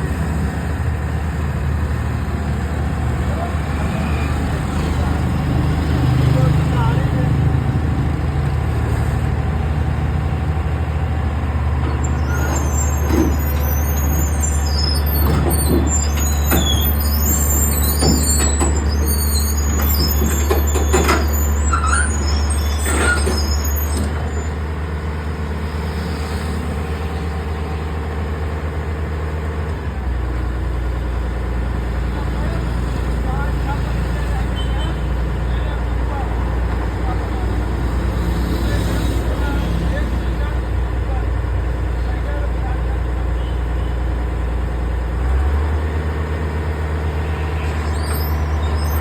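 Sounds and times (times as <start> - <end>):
diesel engine running: 0.0 - 49.0
shrill metallic squeals and clanks: 11.8 - 24.6, 47.2 - 49.0.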